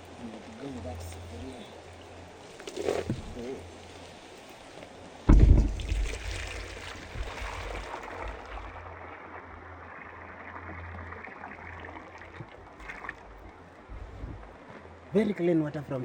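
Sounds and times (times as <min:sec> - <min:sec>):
heavy knock: 0:05.3 - 0:06.3
water pouring into a pot: 0:05.6 - 0:13.2.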